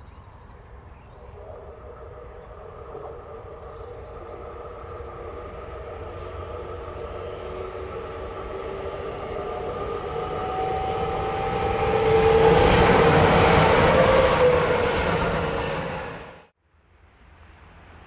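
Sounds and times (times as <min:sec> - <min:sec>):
electric train passing: 0:00.4 - 0:16.6.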